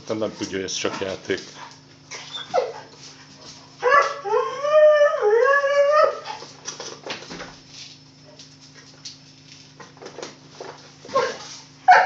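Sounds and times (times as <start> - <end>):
dog whining: 2.1 - 2.9, 3.8 - 6.4
dog yelp: 2.1 - 2.9, 11.1 - 12.0.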